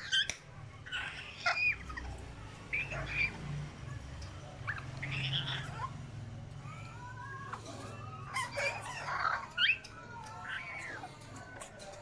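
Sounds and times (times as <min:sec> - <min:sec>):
harsh bird squawks: 0:00.0 - 0:02.1, 0:02.7 - 0:03.4, 0:04.6 - 0:06.0
birds calling: 0:00.0 - 0:11.9.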